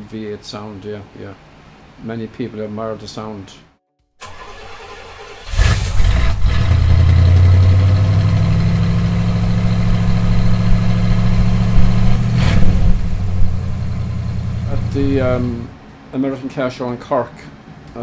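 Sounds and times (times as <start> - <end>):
car engine starting: 4.2 - 15.7
engine revving: 4.2 - 15.7
deep engine idle: 12.9 - 15.7.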